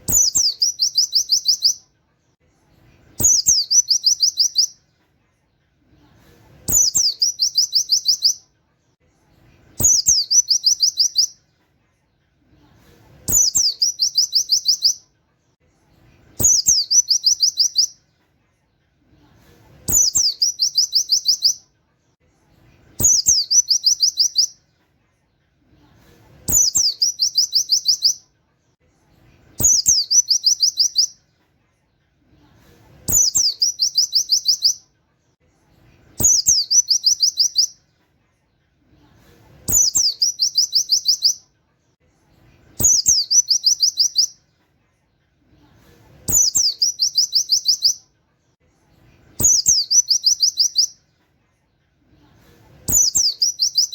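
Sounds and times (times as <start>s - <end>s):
bird singing chirping phrases: 0.0s - 1.9s, 3.1s - 4.8s, 6.7s - 8.5s, 9.8s - 11.4s, 13.3s - 15.1s, 16.3s - 18.0s, 19.9s - 21.6s, 22.9s - 24.6s, 26.5s - 28.3s, 29.6s - 31.2s, 33.1s - 34.8s, 36.2s - 37.8s, 39.7s - 41.4s, 42.8s - 44.4s, 46.3s - 48.0s, 49.3s - 51.0s, 52.9s - 53.9s.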